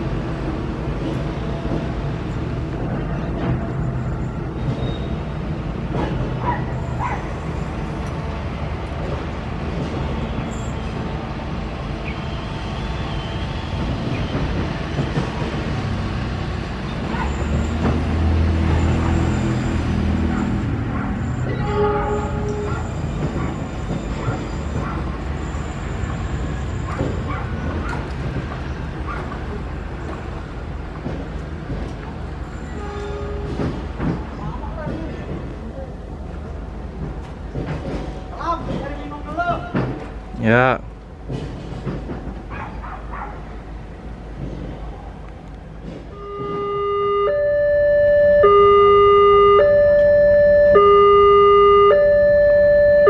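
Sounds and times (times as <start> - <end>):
train coaches rolling on track: 0.0 - 53.0
short train horn note: 21.3 - 23.3, 32.6 - 33.8, 46.1 - 47.3.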